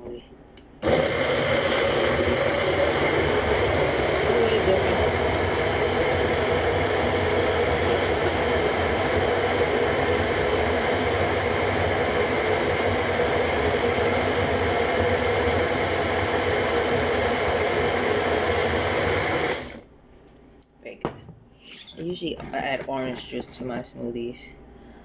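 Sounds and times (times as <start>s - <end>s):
blender motor running: 0.8s - 19.8s.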